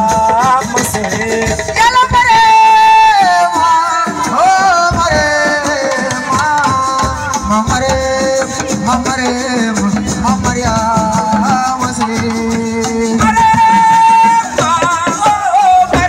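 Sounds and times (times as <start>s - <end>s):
drums: 0.0s - 16.0s
shaker: 3.2s - 16.0s.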